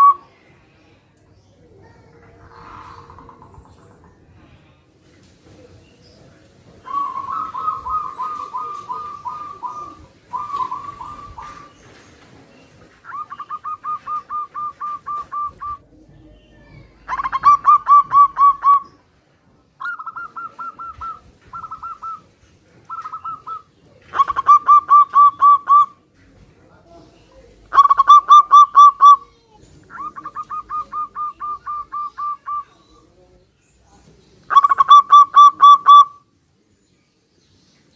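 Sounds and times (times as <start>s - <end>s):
doves cooing: 2.2s - 4.3s, 6.8s - 19.0s, 19.8s - 26.0s, 27.6s - 33.1s, 34.5s - 36.2s.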